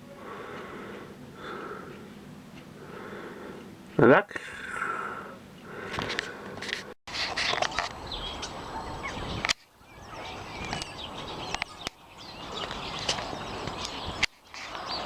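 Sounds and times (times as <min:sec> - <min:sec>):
birds chirping: 0:00.0 - 0:06.5, 0:07.6 - 0:15.0
outdoor background noise: 0:00.0 - 0:15.0.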